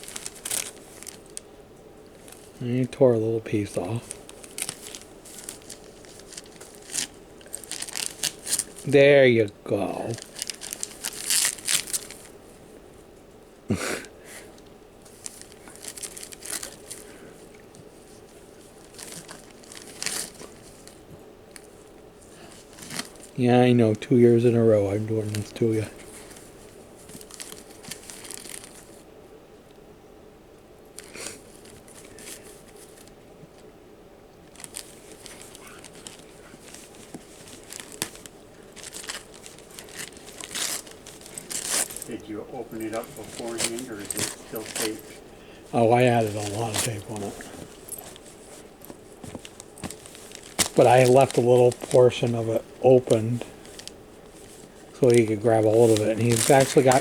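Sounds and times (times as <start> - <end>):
wrapping paper crinkling and tearing: 0.0 - 1.4, 3.5 - 8.9, 9.7 - 12.4, 15.1 - 17.2, 18.0 - 21.8, 22.4 - 23.4, 24.7 - 29.0, 34.5 - 57.0.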